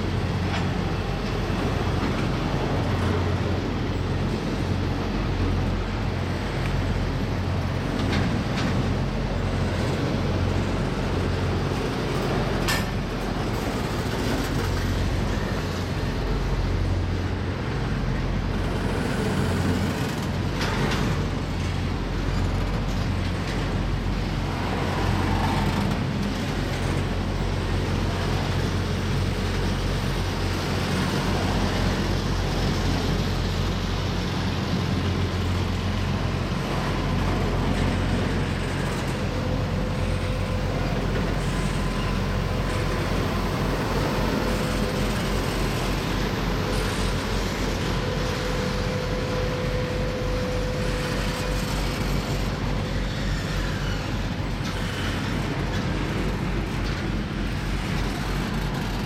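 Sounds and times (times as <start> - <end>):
train wheels rumbling on rails: 0.0 - 59.0
faint steady whine: 26.5 - 59.0.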